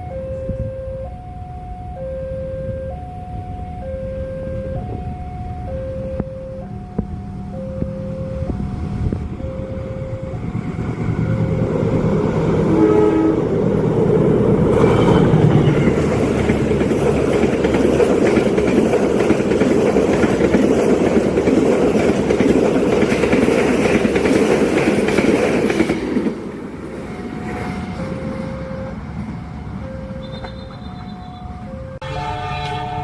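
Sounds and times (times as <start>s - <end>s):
faint alternating tones: 0.0s - 12.2s
train wheels rumbling on rail: 4.7s - 33.0s.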